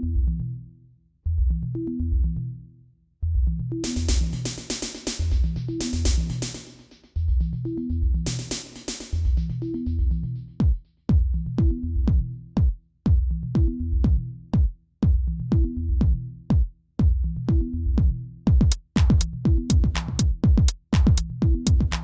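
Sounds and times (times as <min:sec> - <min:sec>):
electronic music with drum machine: 0:03.8 - 0:07.6, 0:08.2 - 0:12.7, 0:17.4 - 0:22.0.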